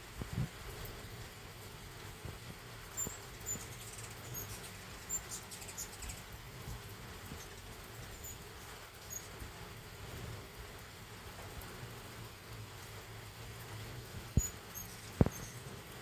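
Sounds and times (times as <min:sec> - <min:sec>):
light rain patter: 0:00.0 - 0:16.0
hummingbird chip calls: 0:02.9 - 0:06.4, 0:07.3 - 0:09.4, 0:14.3 - 0:15.8.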